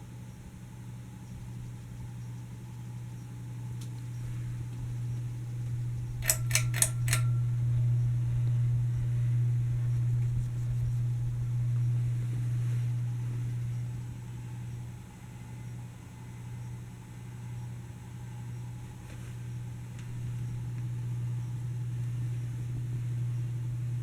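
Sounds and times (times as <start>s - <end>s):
ceiling fan motor humming: 0.0s - 24.0s
sharp clicks: 6.0s - 7.5s.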